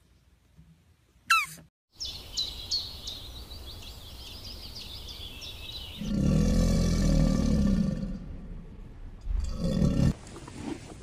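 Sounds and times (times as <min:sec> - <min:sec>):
small birds chirping: 0:01.3 - 0:06.4.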